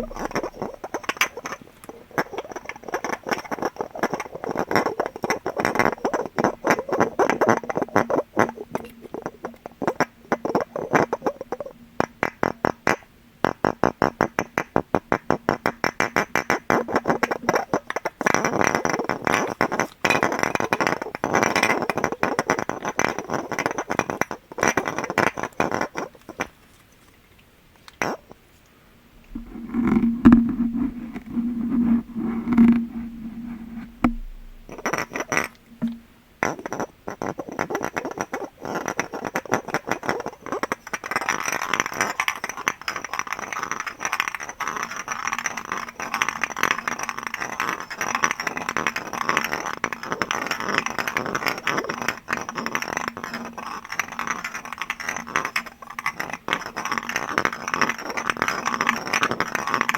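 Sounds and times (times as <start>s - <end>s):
steady low tone: 0.0s - 1.0s, 29.1s - 36.3s
tapping on glass: 0.0s - 1.6s, 34.0s - 36.1s.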